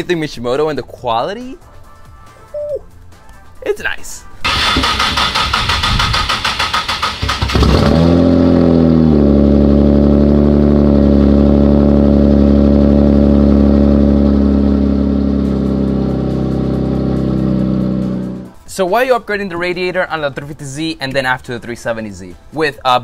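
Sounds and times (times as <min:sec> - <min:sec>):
car engine starting and idling: 0:04.4 - 0:18.5.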